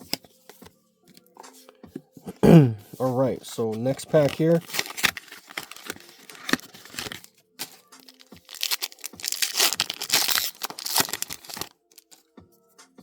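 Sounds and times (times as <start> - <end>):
faint background music: 0.0 - 13.0
wrapper tearing and crinkling: 4.1 - 12.2.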